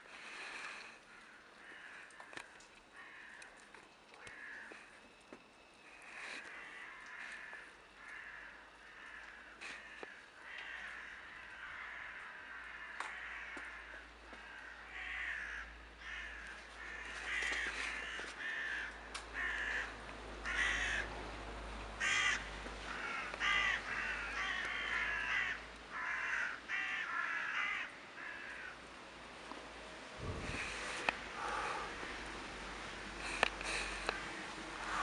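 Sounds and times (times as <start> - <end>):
flock of birds rasping calls: 22.0 - 28.8, 30.5 - 32.2.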